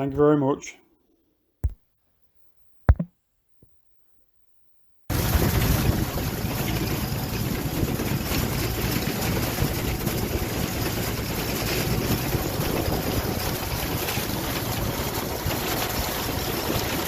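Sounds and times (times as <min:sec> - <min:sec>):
tractor engine running: 0:05.1 - 0:17.0
wind buffeting microphone: 0:05.1 - 0:17.0.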